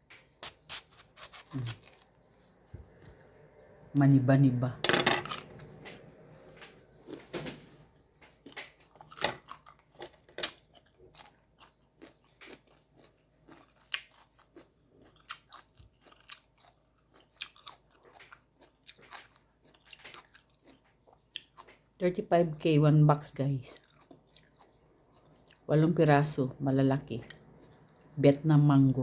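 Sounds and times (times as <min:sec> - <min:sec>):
crunchy biting and chewing: 0:00.1 - 0:02.1, 0:08.4 - 0:21.9, 0:23.8 - 0:25.6.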